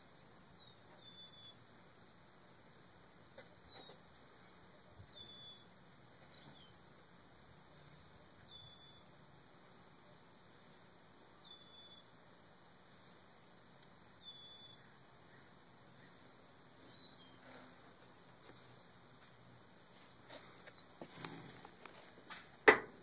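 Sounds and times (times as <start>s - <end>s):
faint bird whistle calls: 0.4s - 1.6s, 3.4s - 5.7s, 11.1s - 12.1s, 14.2s - 16.2s.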